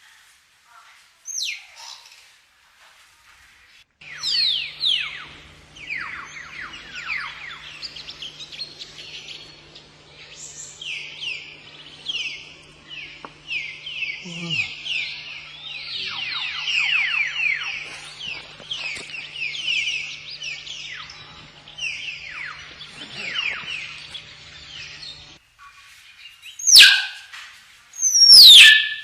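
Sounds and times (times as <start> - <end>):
myna whistles and chirps: 26.6 - 27.2, 28.0 - 29.0
piercing bird shrieks: 28.1 - 29.0.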